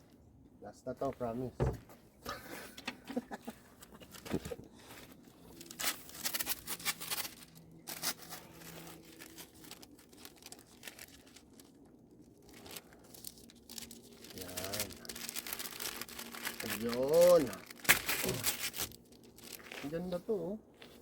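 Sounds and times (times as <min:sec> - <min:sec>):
masking material crinkling: 0:03.8 - 0:21.0
masking tape tearing: 0:05.6 - 0:11.6, 0:12.5 - 0:19.9.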